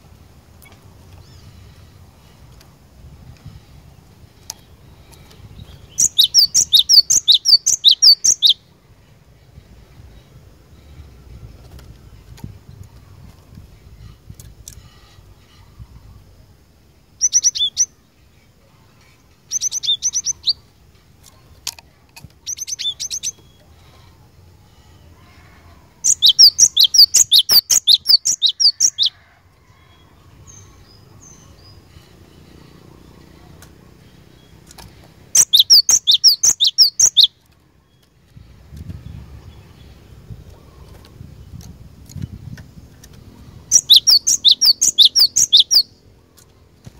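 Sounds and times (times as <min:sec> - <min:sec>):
bird chirping: 0:03.4 - 0:08.7, 0:09.5 - 0:21.5, 0:22.4 - 0:25.1, 0:25.9 - 0:29.2, 0:29.8 - 0:38.2, 0:43.2 - 0:46.5
bird rapidly repeated notes: 0:26.0 - 0:29.1, 0:35.3 - 0:37.3, 0:43.7 - 0:45.9.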